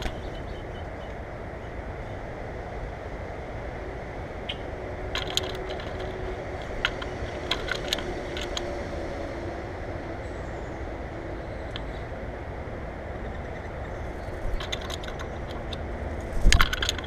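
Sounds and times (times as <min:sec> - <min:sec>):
steady low rumble: 0:00.0 - 0:17.0
beaks tapping and clicking: 0:04.5 - 0:08.8, 0:13.2 - 0:17.0.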